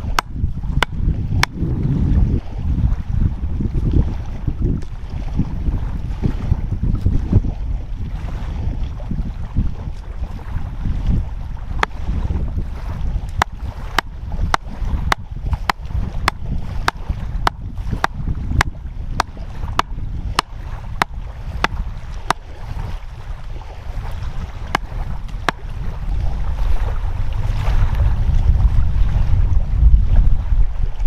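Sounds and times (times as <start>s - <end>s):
wind and surf rumble: 0.0s - 31.0s
sharp hammering knocks: 13.4s - 22.4s.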